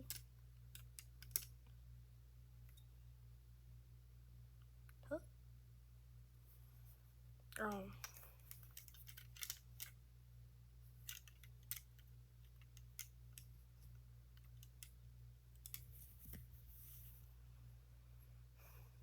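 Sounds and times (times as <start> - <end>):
plastic toy bricks clicking: 0.0 - 1.6, 8.0 - 10.0, 11.0 - 13.5, 15.6 - 15.9
low steady hum: 0.0 - 19.0.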